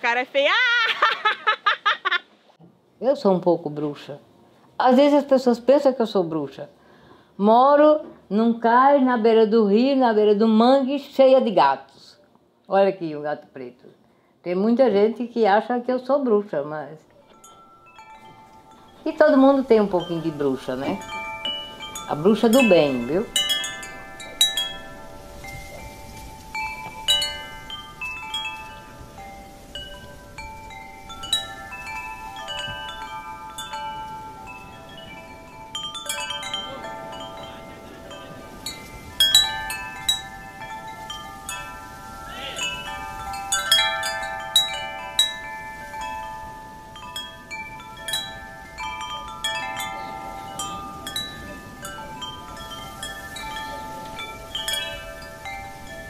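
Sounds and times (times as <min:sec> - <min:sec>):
wind chimes ringing: 0:17.2 - 0:56.0.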